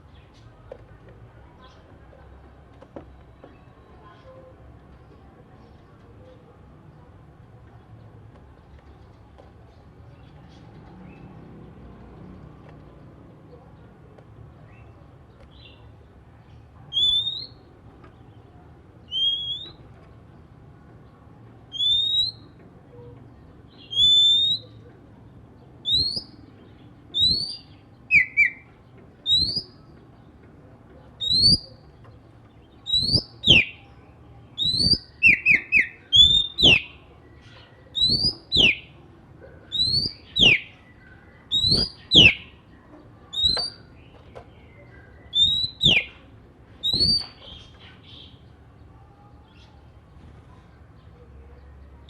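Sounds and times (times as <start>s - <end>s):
bird whistling calls: 17.0s - 17.6s, 19.1s - 19.8s, 21.7s - 22.5s, 23.8s - 24.8s, 25.8s - 26.4s, 27.1s - 29.8s, 31.2s - 31.8s, 32.8s - 33.8s, 34.6s - 37.0s, 37.9s - 38.9s, 39.7s - 40.8s, 41.5s - 42.5s, 43.3s - 43.8s, 45.3s - 46.2s, 46.8s - 47.4s.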